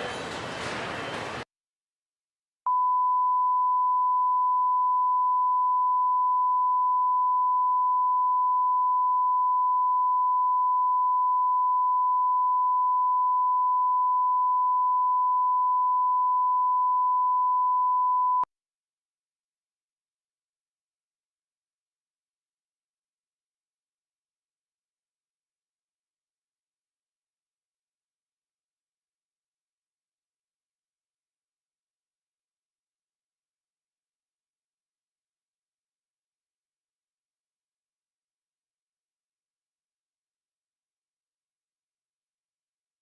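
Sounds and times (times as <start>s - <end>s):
high-pitched test tone beep: 2.7s - 18.5s.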